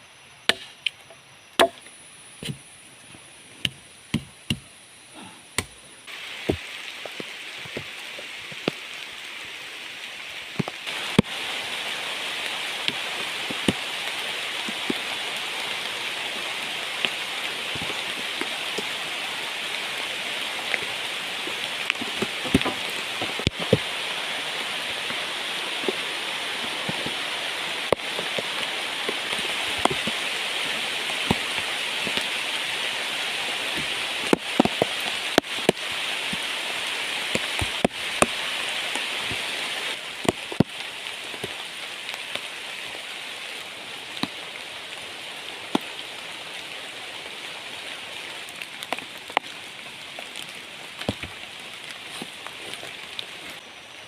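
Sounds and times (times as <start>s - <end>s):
large raindrops tapping: 5.6s - 53.6s
heavy rain falling: 6.0s - 54.0s.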